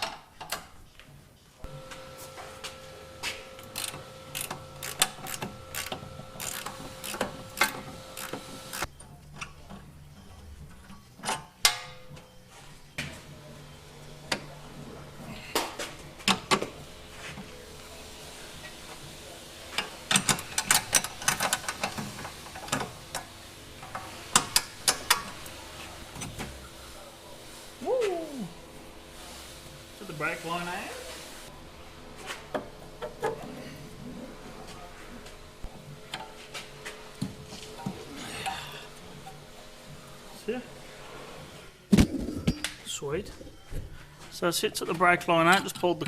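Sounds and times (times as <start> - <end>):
hand ratchet clicking: 3.8 - 8.9.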